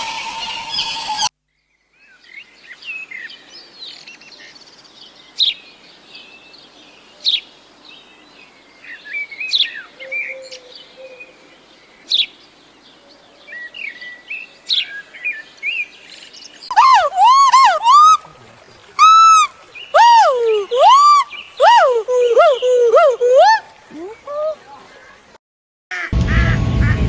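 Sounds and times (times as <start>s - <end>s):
birds twittering: 13.5s - 25.4s.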